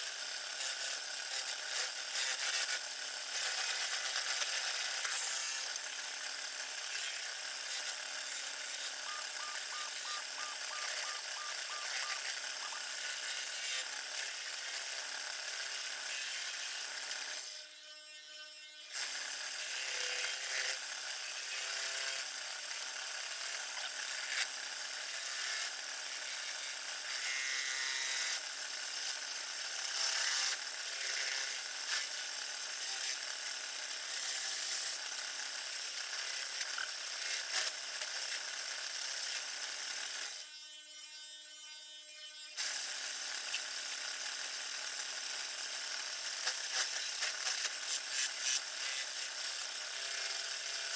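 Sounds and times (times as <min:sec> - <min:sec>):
wood lathe humming: 0:05.6 - 0:17.3.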